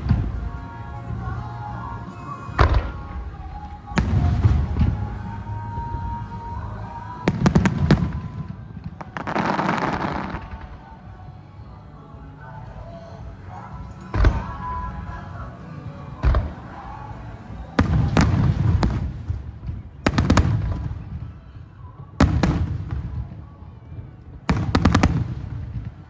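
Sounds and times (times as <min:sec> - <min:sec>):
fireworks booming: 0:02.5 - 0:06.2, 0:07.3 - 0:11.0, 0:13.7 - 0:15.6, 0:16.2 - 0:21.4, 0:22.2 - 0:23.5, 0:24.3 - 0:26.0.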